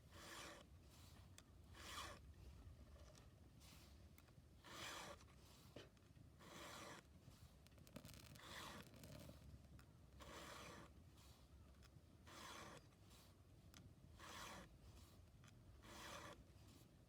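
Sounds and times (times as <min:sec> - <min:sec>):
hand file rasping on chain: 0:00.0 - 0:02.3, 0:04.6 - 0:05.4, 0:06.3 - 0:07.1, 0:10.2 - 0:11.5, 0:12.2 - 0:13.4, 0:14.1 - 0:15.2, 0:15.8 - 0:17.0.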